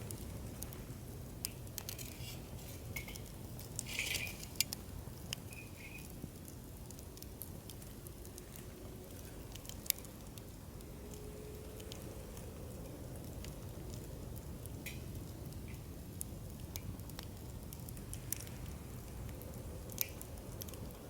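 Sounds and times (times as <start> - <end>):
campfire crackling and popping: 0.0 - 21.0
fire hissing flare: 3.7 - 4.7.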